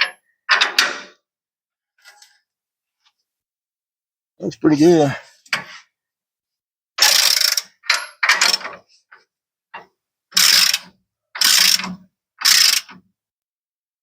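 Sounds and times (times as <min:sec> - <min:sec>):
socket ratchet clicking: 0:10.4 - 0:13.0.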